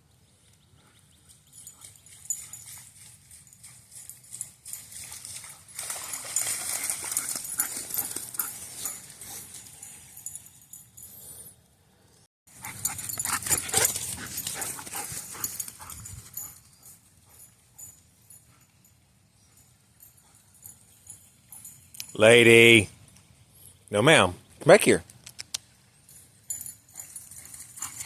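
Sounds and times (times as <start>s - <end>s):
paws splashing through water: 1.5s - 9.6s.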